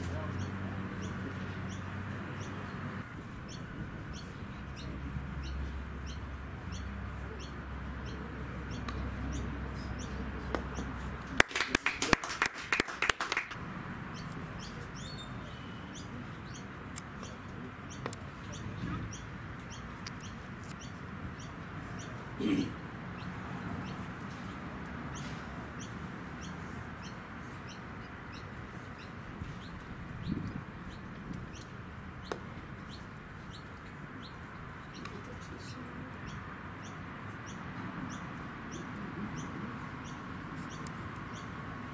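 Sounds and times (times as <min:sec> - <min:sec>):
bird chirping: 0:00.0 - 0:11.0, 0:14.1 - 0:24.1.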